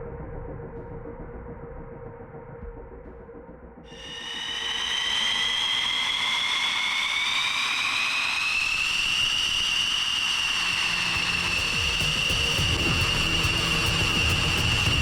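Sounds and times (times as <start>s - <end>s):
jet engine whine spooling up: 3.9s - 15.0s.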